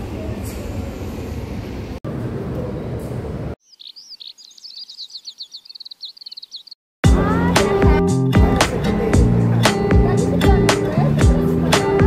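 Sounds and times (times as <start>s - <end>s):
bird singing chirps and trills: 3.6s - 6.8s.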